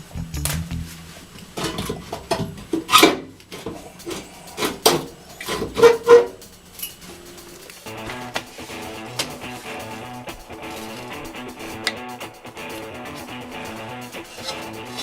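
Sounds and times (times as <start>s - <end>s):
metal scraping and rubbing: 4.0s - 7.9s, 14.2s - 15.0s.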